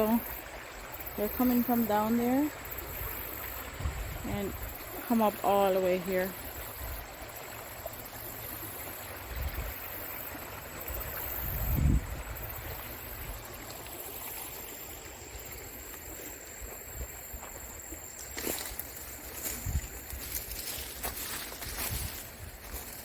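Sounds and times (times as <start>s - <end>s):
creek water running: 0.0s - 23.0s.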